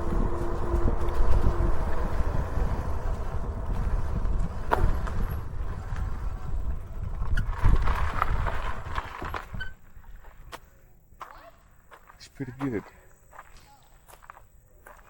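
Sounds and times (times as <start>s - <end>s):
bike clicks and rattles: 0.0s - 10.5s
wind rumbling on microphone: 0.0s - 10.7s.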